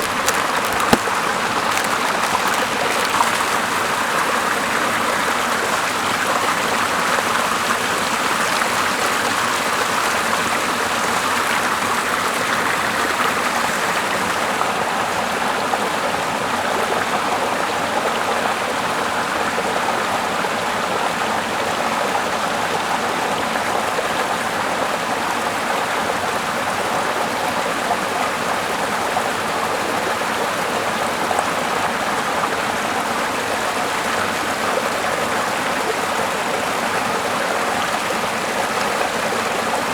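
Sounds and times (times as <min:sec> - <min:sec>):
river flowing over rocks: 0:00.0 - 0:06.8
small waterfall rushing: 0:00.0 - 0:39.9.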